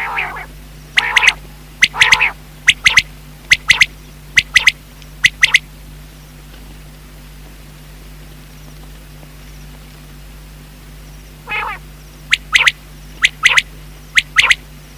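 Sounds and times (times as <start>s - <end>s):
quail calling: 0.0s - 5.6s, 11.4s - 14.6s.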